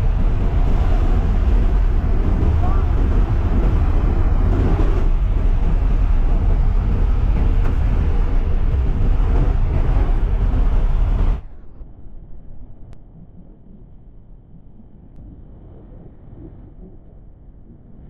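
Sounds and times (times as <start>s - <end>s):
rushing air: 0.0s - 12.8s
turboprop engine cabin noise: 0.0s - 13.7s.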